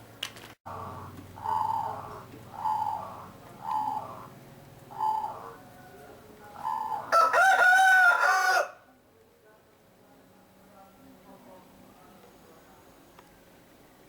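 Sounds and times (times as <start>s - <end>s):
dove cooing: 0.7s - 5.7s, 6.5s - 7.6s
rooster crowing: 6.8s - 8.9s.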